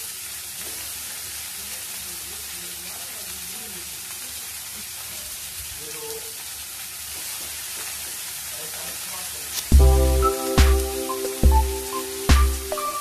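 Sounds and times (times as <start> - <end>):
cabbage sizzling in hot oil: 0.0 - 13.0
loud background music: 9.7 - 13.0.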